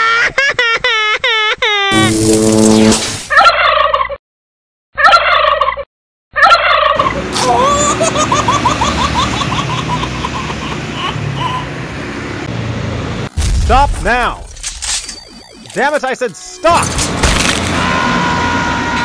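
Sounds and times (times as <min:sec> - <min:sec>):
turkey gobbling: 0:03.3 - 0:04.2, 0:05.0 - 0:05.8, 0:06.4 - 0:08.0
road traffic: 0:06.5 - 0:19.0
truck passing: 0:06.8 - 0:13.6, 0:16.7 - 0:19.0.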